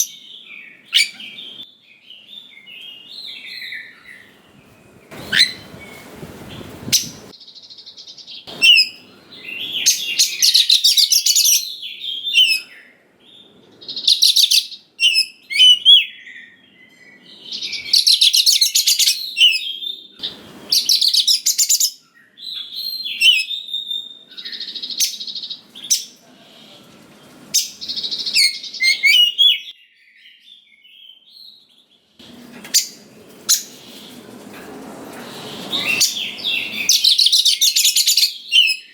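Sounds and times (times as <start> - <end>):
bird singing whistles and rattles: 5.1 - 7.3, 8.5 - 12.7, 13.9 - 16.3, 16.9 - 26.2, 27.5 - 29.7, 32.6 - 34.2, 35.2 - 38.9.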